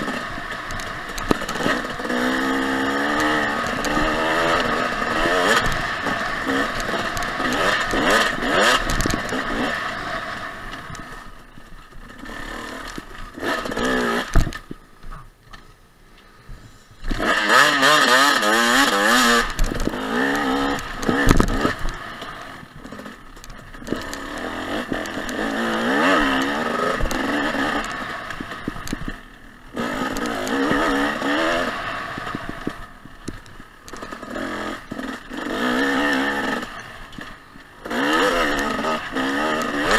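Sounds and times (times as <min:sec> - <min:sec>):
bike clattering over bumps: 0:00.0 - 0:09.8, 0:17.0 - 0:31.6
dirt bike engine revving: 0:00.0 - 0:14.7, 0:17.0 - 0:39.9.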